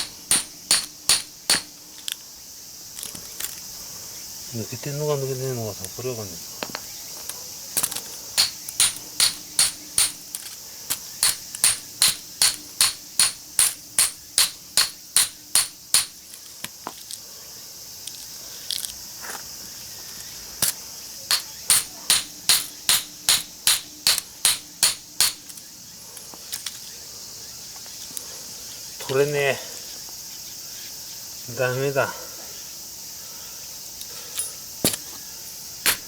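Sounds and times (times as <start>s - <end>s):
hammer striking metal: 0.0s - 1.7s, 8.4s - 10.2s, 11.2s - 16.1s, 21.3s - 25.4s.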